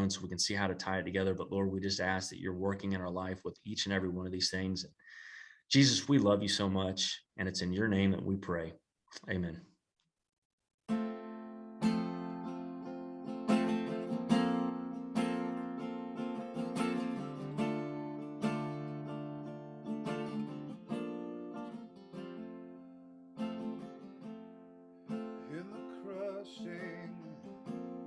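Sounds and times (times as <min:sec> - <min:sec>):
acoustic guitar strumming: 0:10.9 - 0:28.0.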